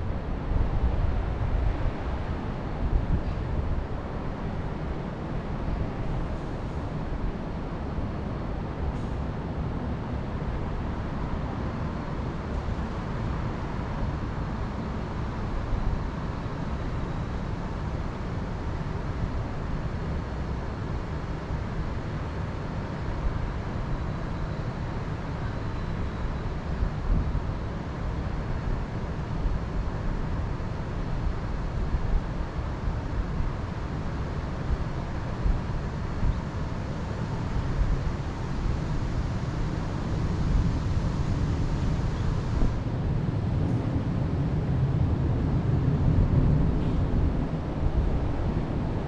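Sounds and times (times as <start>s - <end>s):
wind rushing with gusts: 29.5s - 49.0s.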